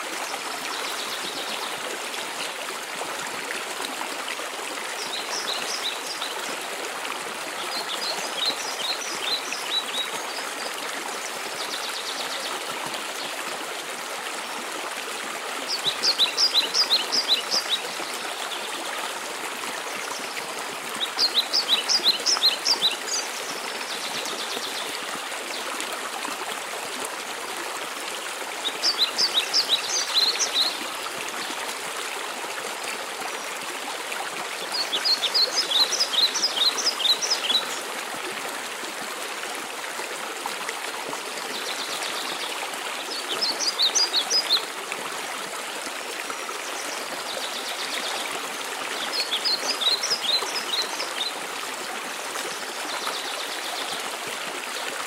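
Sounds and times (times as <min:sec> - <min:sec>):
songbird phrase: 0:21.0 - 0:25.6, 0:28.6 - 0:30.9, 0:34.6 - 0:37.8, 0:46.7 - 0:51.4.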